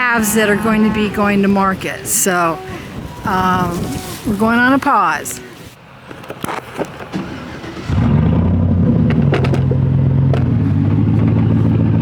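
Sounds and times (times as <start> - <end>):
vehicle engine starting and idling: 6.5 - 12.0.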